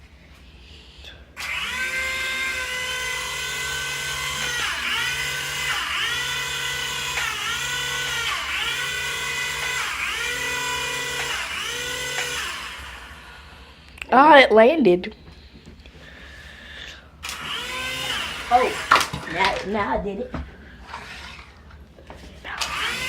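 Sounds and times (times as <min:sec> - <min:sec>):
toy helicopter motor whining: 0:01.4 - 0:14.0, 0:17.2 - 0:19.8, 0:20.8 - 0:21.7, 0:22.5 - 0:23.0.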